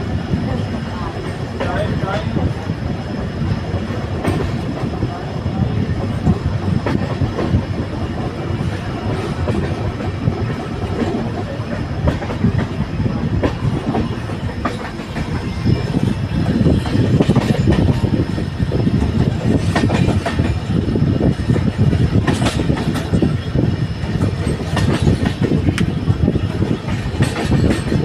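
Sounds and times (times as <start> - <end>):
train rumbling on track: 0.0 - 28.0
wheels clicking over rail joints: 6.0 - 18.2, 19.1 - 28.0.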